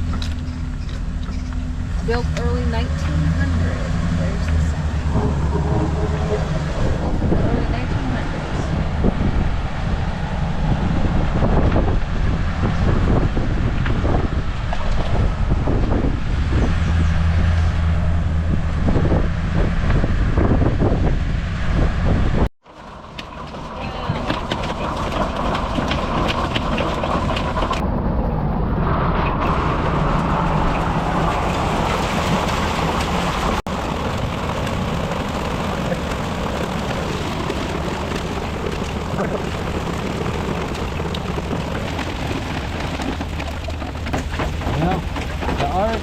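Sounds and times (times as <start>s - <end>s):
low rumble: 0.0s - 46.0s
hail clattering on vehicle: 22.7s - 27.8s, 30.3s - 46.0s.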